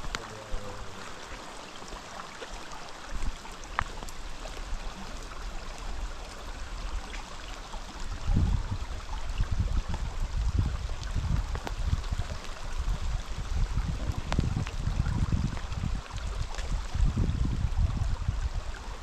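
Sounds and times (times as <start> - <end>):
rushing water: 0.0 - 19.0
wind buffeting microphone: 7.8 - 19.0.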